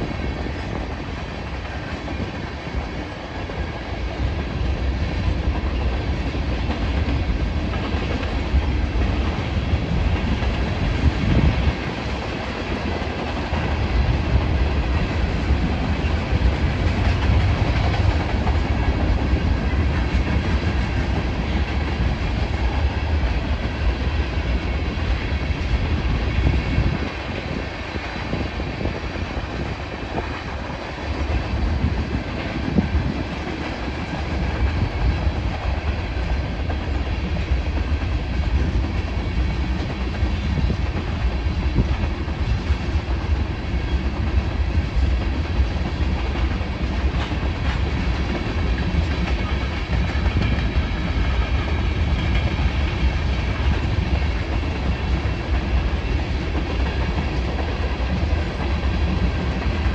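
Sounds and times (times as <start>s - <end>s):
short clacks of train wheels: 0.0s - 59.9s
train wheels rumbling on rail: 0.0s - 59.9s.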